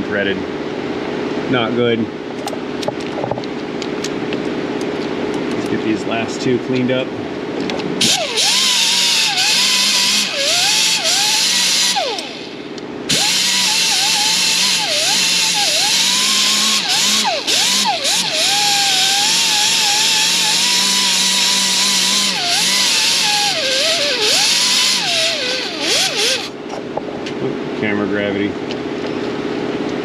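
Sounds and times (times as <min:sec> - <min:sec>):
air grinder whining: 0:08.0 - 0:26.6.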